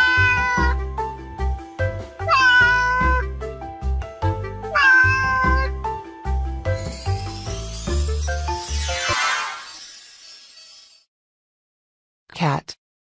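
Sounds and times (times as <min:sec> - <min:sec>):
cat meowing: 0:00.0 - 0:00.8, 0:02.2 - 0:03.3, 0:04.6 - 0:05.8.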